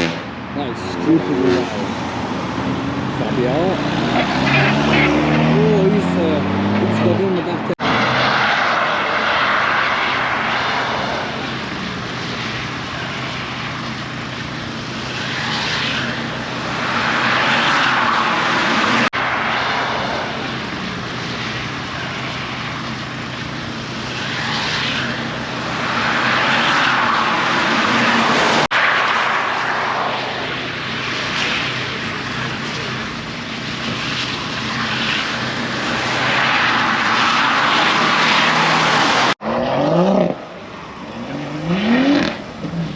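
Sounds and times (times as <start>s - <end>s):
car engine drone: 0.0s - 42.9s
road and wind noise: 0.0s - 42.9s.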